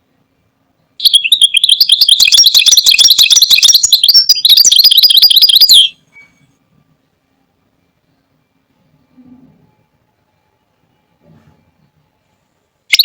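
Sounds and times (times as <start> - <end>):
finch twittering song: 1.0 - 5.9.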